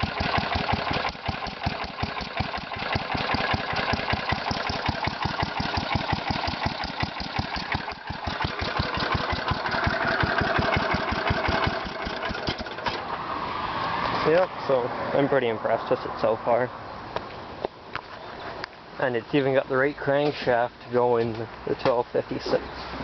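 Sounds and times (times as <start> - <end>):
single-cylinder engine running: 0.0 - 13.0.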